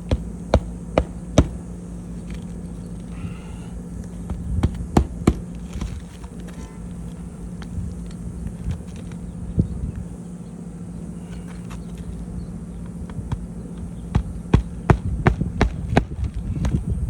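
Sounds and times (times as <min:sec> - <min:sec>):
steady low hum: 0:00.0 - 0:17.0
hammer striking nails into wood: 0:00.1 - 0:01.7, 0:04.6 - 0:05.5.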